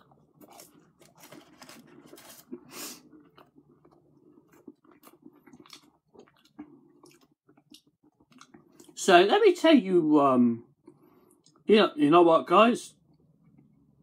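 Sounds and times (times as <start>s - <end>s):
chewing crispy food: 0.0s - 9.0s.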